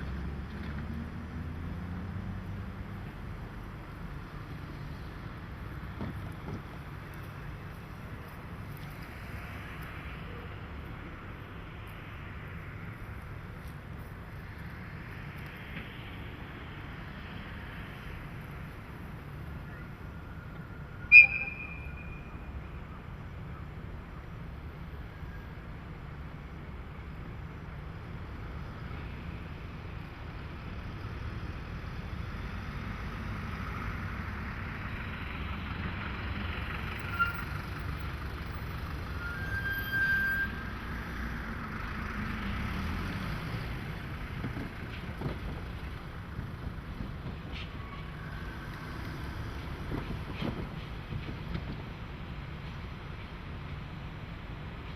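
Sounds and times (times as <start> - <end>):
diesel locomotive engine rumble: 0.0 - 54.9
sharp high-pitched horn toot: 21.1 - 22.3.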